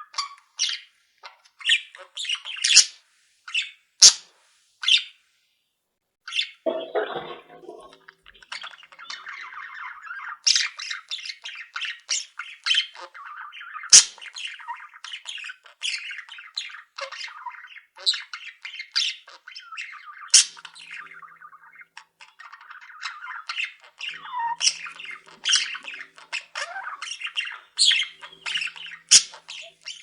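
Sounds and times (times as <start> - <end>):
budgerigars chattering: 1.6 - 4.2, 6.3 - 30.0
sharp bird squawks: 23.0 - 30.0.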